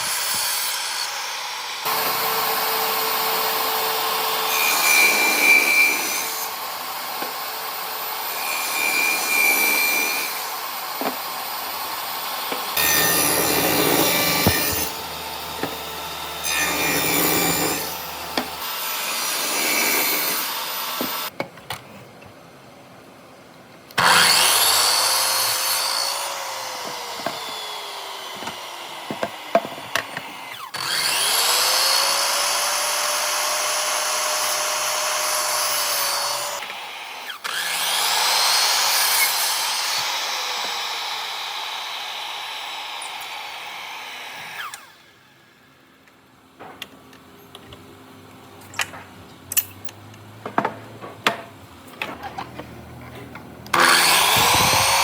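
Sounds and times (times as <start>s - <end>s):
power tool cutting wood: 0.0s - 21.3s, 24.0s - 45.2s, 53.7s - 55.0s.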